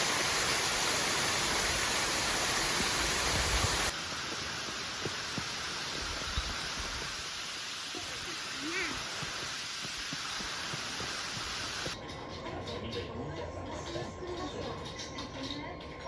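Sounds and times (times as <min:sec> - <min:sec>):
falling water rushing: 0:00.0 - 0:12.0.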